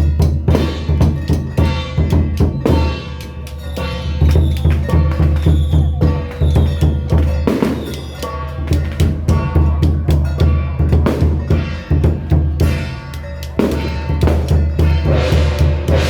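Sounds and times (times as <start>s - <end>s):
cymbal crashes: 0.0s - 9.7s, 10.3s - 16.0s
fast drumbeat: 0.0s - 16.0s
steady pitched notes: 11.4s - 16.0s.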